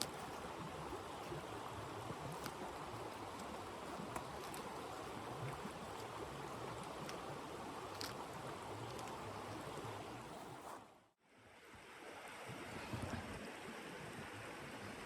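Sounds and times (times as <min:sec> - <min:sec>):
wood fire crackling: 0:00.0 - 0:10.1.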